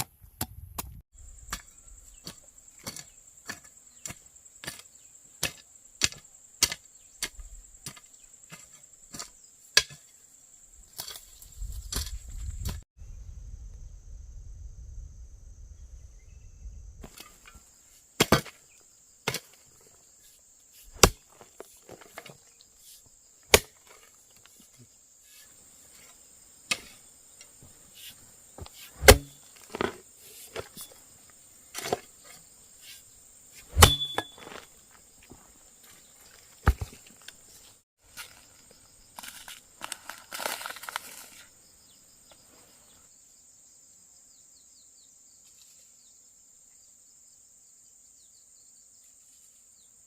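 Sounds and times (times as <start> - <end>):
high drone of insects: 1.2 - 50.0
sharp chopping strikes: 20.9 - 21.3, 23.5 - 23.9, 28.9 - 30.0, 33.7 - 34.6.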